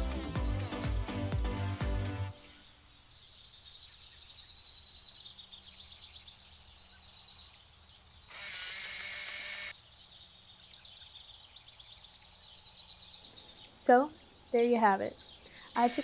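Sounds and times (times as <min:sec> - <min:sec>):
high-pitched rapid chirping: 0:15.8 - 0:16.0.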